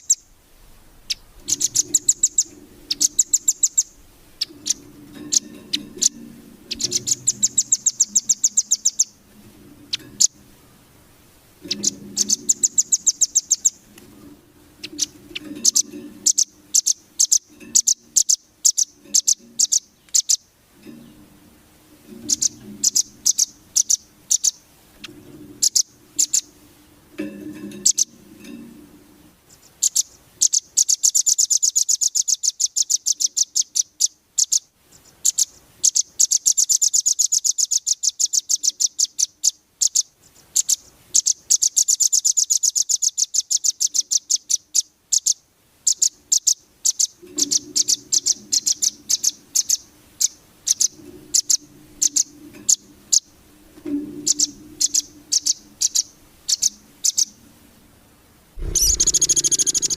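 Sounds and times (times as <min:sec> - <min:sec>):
bird rapid chattering song: 0:00.0 - 0:00.3, 0:01.0 - 0:09.2, 0:11.6 - 0:13.8, 0:14.8 - 0:20.4, 0:22.2 - 0:24.6, 0:25.6 - 0:26.5, 0:27.8 - 0:28.2, 0:29.5 - 0:53.3, 0:54.2 - 0:57.4, 0:58.6 - 0:59.9
faint low hum: 0:00.0 - 0:30.2, 0:47.2 - 0:59.9.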